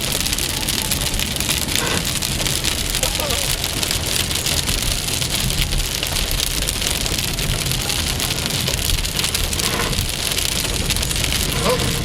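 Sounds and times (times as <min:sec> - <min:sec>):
heavy rain pelting down: 0:00.0 - 0:12.0
low thunder rumble: 0:00.0 - 0:12.0.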